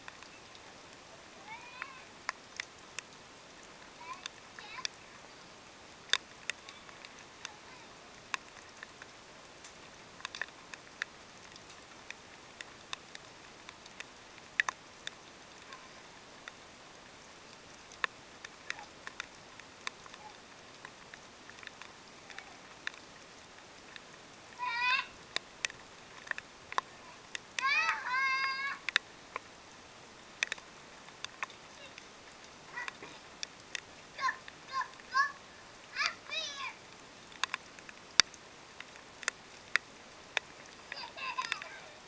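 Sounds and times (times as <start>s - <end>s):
rain dripping and pattering: 0.0s - 42.0s
child squealing: 27.6s - 28.8s.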